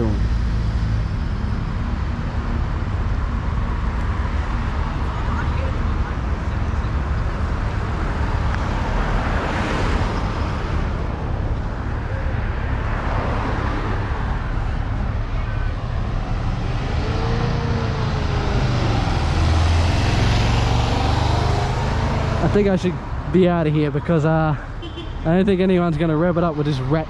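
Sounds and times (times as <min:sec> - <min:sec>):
car engines rumbling: 0:00.0 - 0:27.0
car passing: 0:07.4 - 0:27.0.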